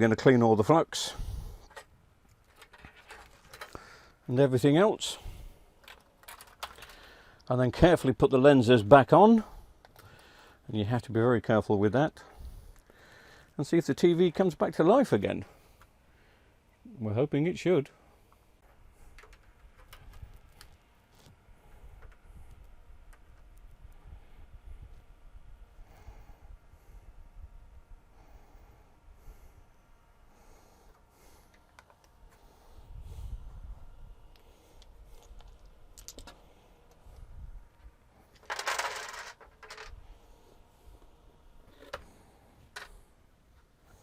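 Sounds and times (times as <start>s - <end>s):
small parts clicking and tapping: 1.7s - 3.8s, 5.8s - 7.5s, 18.6s - 21.3s, 34.3s - 37.2s, 38.3s - 40.0s.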